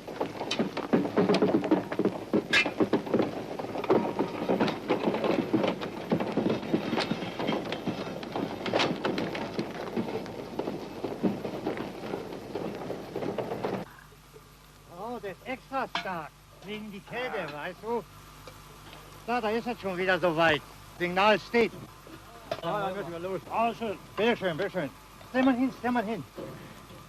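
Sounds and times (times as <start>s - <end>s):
freight wagons clattering and clanking: 0.0s - 13.9s, 22.5s - 27.0s.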